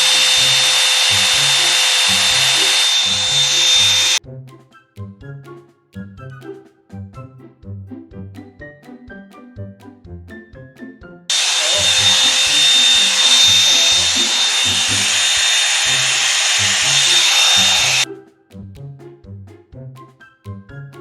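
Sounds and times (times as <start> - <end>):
hair dryer running: 0.0 - 4.2, 11.3 - 18.1.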